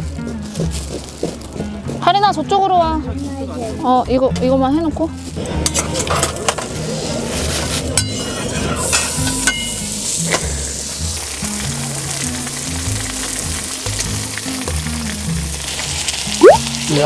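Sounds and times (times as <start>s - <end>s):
background music: 0.0s - 17.0s
pork belly sizzling on grill pan: 5.1s - 17.0s
utensils clinking: 5.2s - 10.5s.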